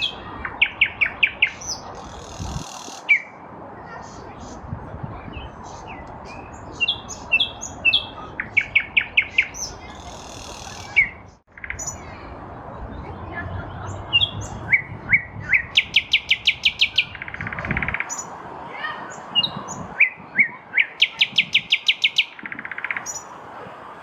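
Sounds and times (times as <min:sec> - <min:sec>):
nightingale singing: 0:00.0 - 0:03.4, 0:05.2 - 0:12.2, 0:13.9 - 0:18.3, 0:19.4 - 0:23.4.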